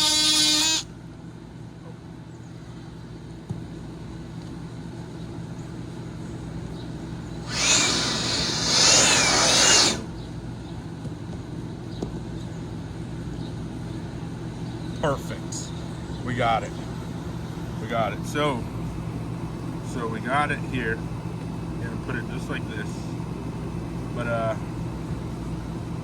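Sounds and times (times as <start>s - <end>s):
power drill whining: 0.0s - 0.8s, 7.4s - 10.1s.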